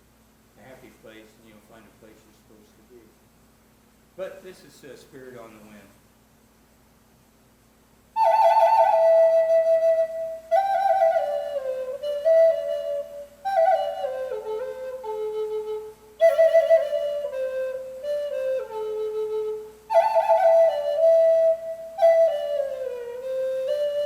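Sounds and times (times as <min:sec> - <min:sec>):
flute playing slow melody: 0:08.2 - 0:24.0.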